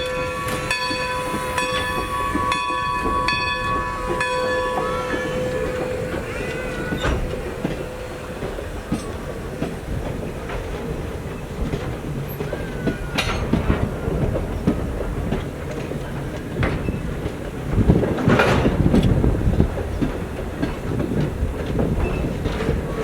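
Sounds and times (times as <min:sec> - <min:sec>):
wheel squeal: 0:00.0 - 0:09.8, 0:12.3 - 0:13.9
train rumbling past: 0:00.0 - 0:23.0
wheels clicking over rail joints: 0:00.0 - 0:23.0.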